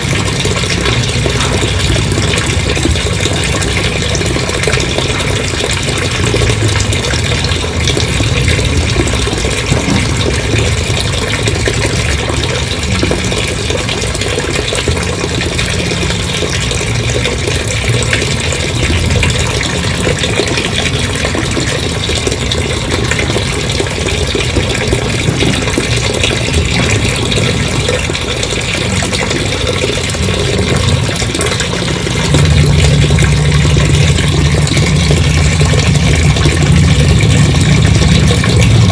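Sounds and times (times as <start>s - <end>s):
engine running: 0.0s - 38.9s
water gushing: 0.0s - 38.9s.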